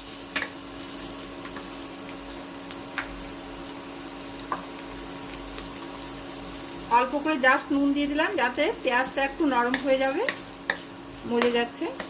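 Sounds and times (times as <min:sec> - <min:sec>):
onions sizzling in oil: 0:00.0 - 0:12.0
spatula clicking against pan: 0:09.7 - 0:12.0.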